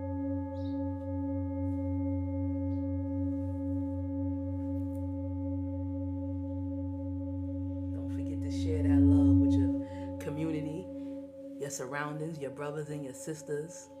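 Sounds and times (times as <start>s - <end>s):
singing bowl ringing: 0.0s - 14.0s
faint bird chirps: 0.5s - 0.9s.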